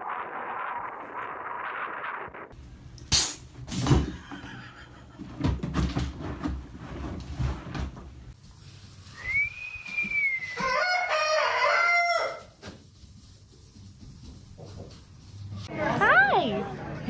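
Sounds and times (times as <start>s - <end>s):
knocks and thumps: 3.6s - 8.2s.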